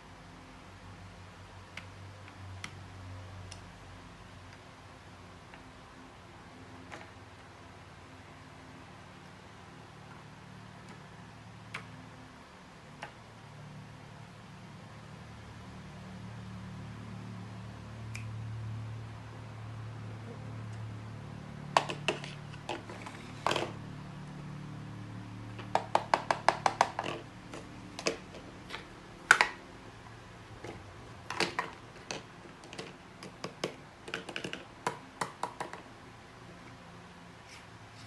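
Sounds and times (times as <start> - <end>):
low steady hum: 0.0 - 38.0
hard objects clicking together: 25.6 - 29.6, 30.6 - 35.8.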